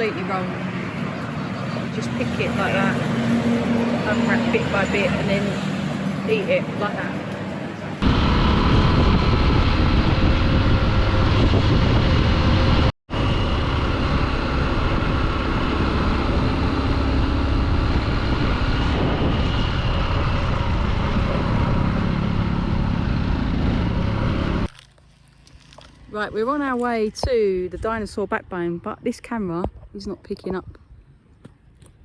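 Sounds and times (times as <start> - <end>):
wind rumbling on microphone: 0.0 - 24.7, 25.9 - 32.0.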